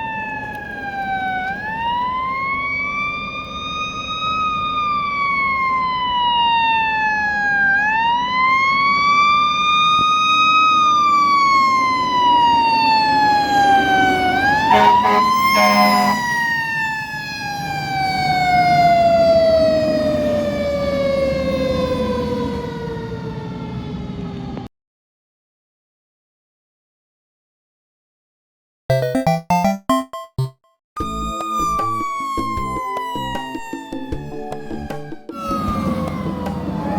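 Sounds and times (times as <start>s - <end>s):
emergency siren wailing: 0.0s - 24.7s, 31.0s - 36.9s
truck engine rumble: 14.5s - 16.4s, 35.4s - 36.9s
short sharp siren blasts: 14.5s - 16.8s.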